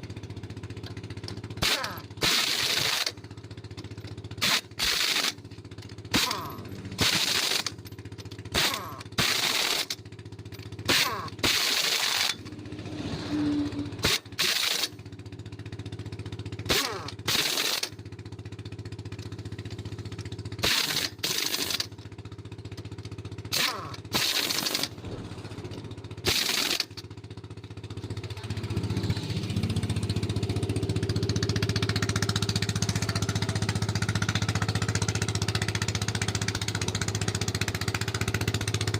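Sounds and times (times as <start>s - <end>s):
engine running steadily: 0.0s - 38.9s
pneumatic tool bursts: 1.6s - 3.2s, 4.4s - 5.5s, 6.1s - 7.8s, 8.5s - 10.0s, 10.8s - 12.6s, 13.3s - 15.0s, 16.6s - 18.0s, 20.6s - 22.0s, 23.5s - 25.2s, 26.2s - 27.0s.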